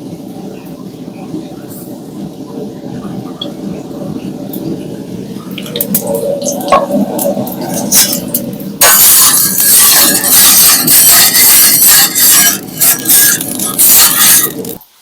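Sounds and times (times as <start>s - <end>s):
food sizzling in a pan: 5.6s - 15.0s.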